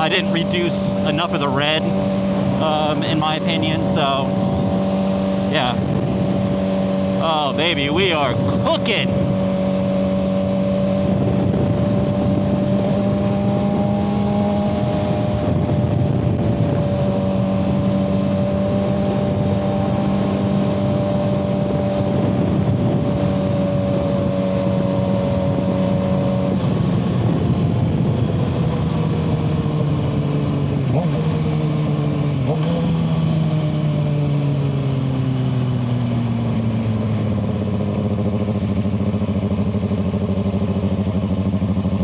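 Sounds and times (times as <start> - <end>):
motorcycle engine running: 0.0 - 42.0
wind rush over microphone: 1.8 - 33.1.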